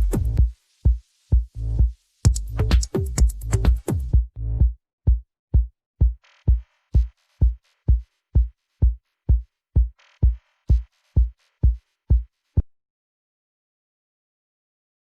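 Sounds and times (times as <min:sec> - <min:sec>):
electronic kick drum: 0:00.0 - 0:12.3.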